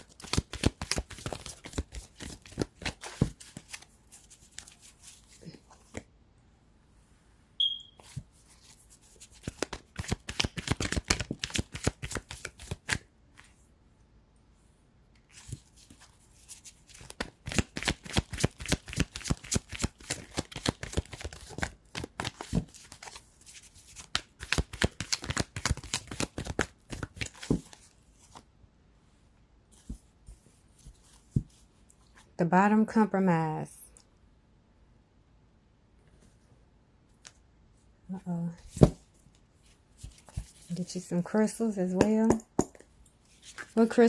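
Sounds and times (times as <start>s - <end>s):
cards being shuffled: 0.0s - 6.1s, 8.0s - 13.5s, 15.3s - 28.4s, 39.9s - 40.7s, 43.3s - 44.0s.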